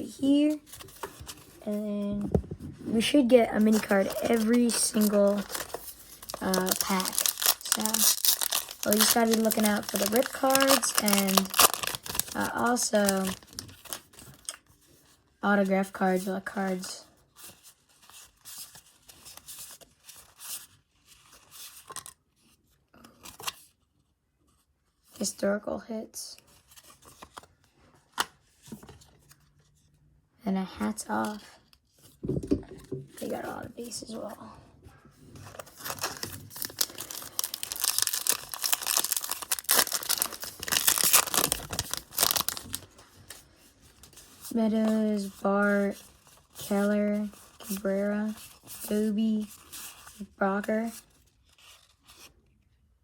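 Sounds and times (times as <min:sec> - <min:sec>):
cards rustling and crinkling: 0:00.0 - 0:23.8, 0:26.4 - 0:30.0, 0:30.8 - 0:34.4, 0:35.3 - 0:52.7
card pack wrapper crinkling: 0:03.4 - 0:14.6, 0:35.4 - 0:43.4.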